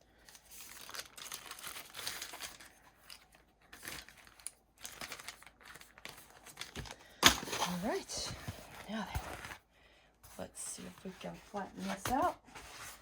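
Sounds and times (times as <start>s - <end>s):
plastic packaging crinkling: 0.1s - 9.5s.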